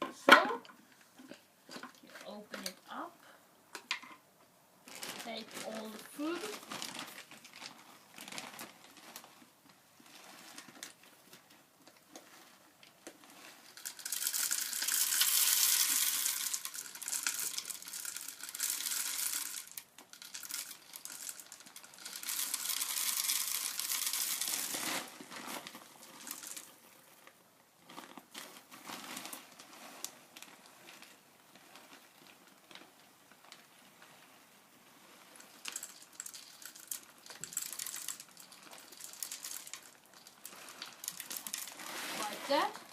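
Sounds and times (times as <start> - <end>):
plastic crinkles and rattles: 0.0 - 3.0, 4.8 - 42.9
bird seed rustling into bottle: 35.4 - 42.9.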